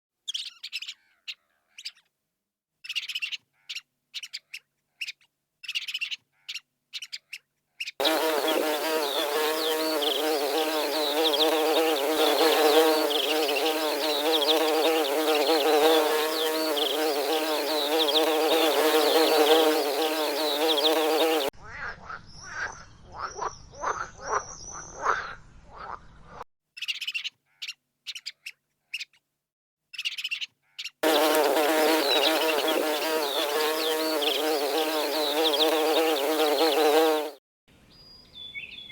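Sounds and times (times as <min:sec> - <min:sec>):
buzzing of bees: 0:08.0 - 0:21.5, 0:31.0 - 0:37.4.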